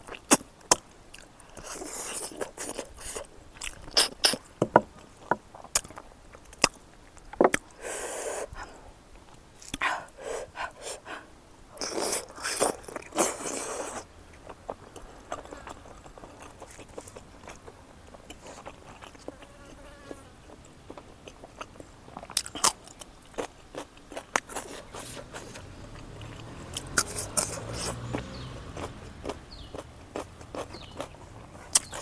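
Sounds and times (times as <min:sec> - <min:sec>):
wet open-mouthed chewing: 0:00.0 - 0:04.5, 0:11.8 - 0:32.0
lip smacks and mouth clicks: 0:30.4 - 0:32.0.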